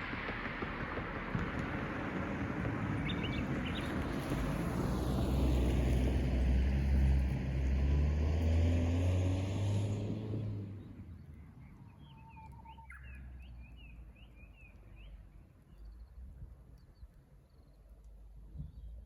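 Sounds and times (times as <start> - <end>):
vehicle engine rumble: 0.0 - 12.1
bird singing: 3.0 - 3.9, 11.1 - 17.9.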